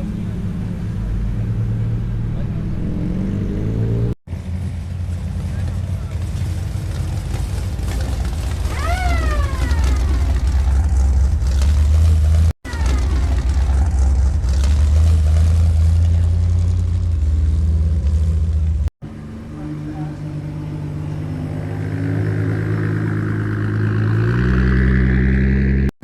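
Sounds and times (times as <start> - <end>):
vehicle engine rumbling: 0.0 - 25.9
high tone falling in pitch: 8.7 - 10.5.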